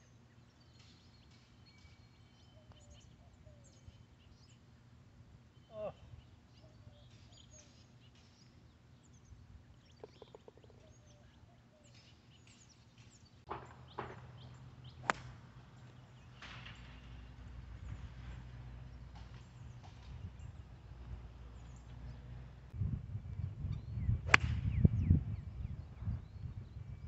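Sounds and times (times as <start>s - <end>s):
small birds chirping: 0.0s - 4.8s, 5.5s - 22.4s.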